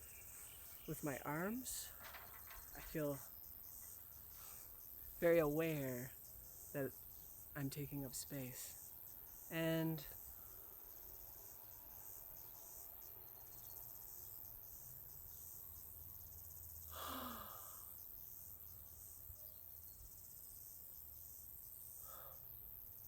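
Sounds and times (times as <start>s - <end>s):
crickets chirping: 0.0s - 23.0s
breathy sigh: 16.9s - 17.9s.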